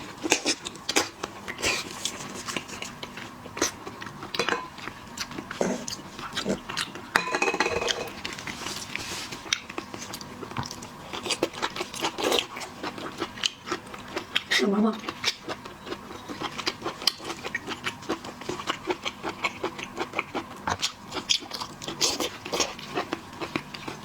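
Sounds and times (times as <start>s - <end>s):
biting and chewing: 0.2s - 24.0s
dishes and utensils clinking: 4.4s - 4.9s, 7.1s - 8.2s.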